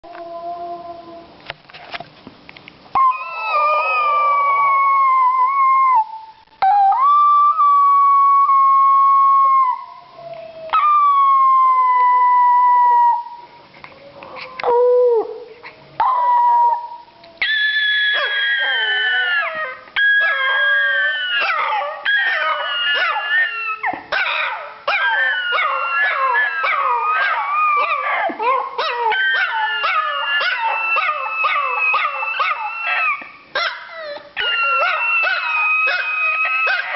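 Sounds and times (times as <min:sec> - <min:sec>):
small dog howling: 0:03.0 - 0:13.4, 0:16.0 - 0:36.9
dog yipping: 0:17.4 - 0:36.9.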